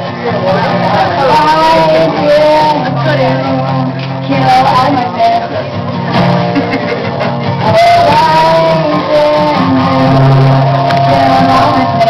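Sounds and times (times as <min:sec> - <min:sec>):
guitar accompaniment: 0:00.0 - 0:12.0
person singing long sliding notes: 0:00.7 - 0:05.7, 0:07.4 - 0:12.0.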